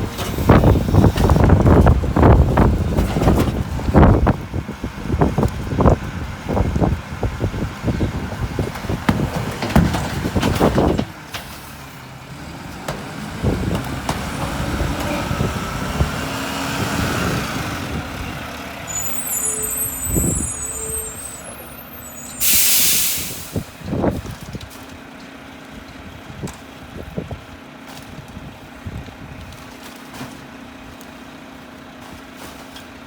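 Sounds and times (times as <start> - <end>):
wind gusts on microphone: 0.0 - 11.0, 13.3 - 18.5
diesel truck engine running: 0.0 - 32.3
short tones: 18.9 - 23.4
air brakes hissing: 18.9 - 23.8.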